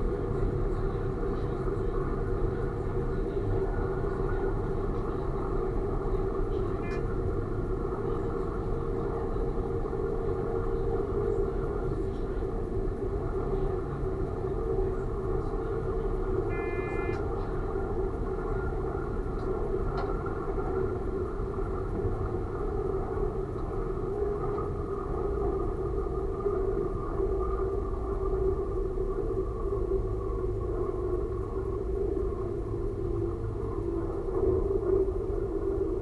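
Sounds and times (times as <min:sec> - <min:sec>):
train running drone: 0:00.0 - 0:36.0
short electronic beep: 0:16.5 - 0:17.2.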